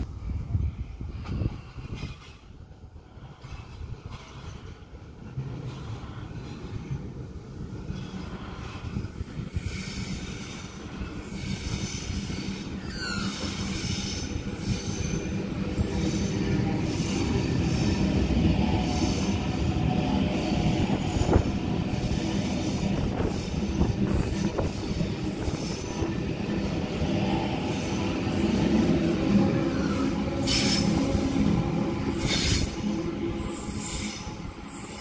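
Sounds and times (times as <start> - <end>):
electric train rumbling: 0.0 - 35.0
high wheel squeals: 11.3 - 15.4.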